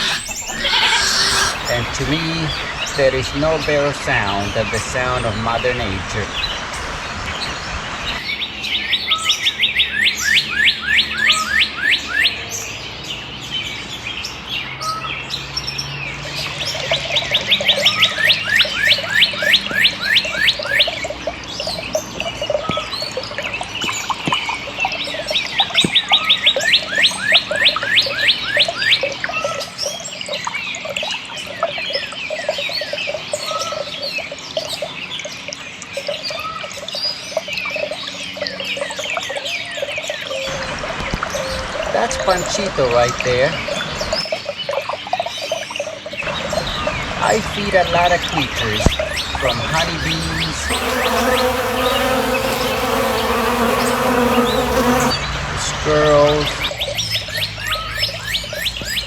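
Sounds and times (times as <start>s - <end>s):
bird trilling: 0.0s - 2.6s
birds chirping: 0.0s - 12.8s, 46.2s - 55.4s.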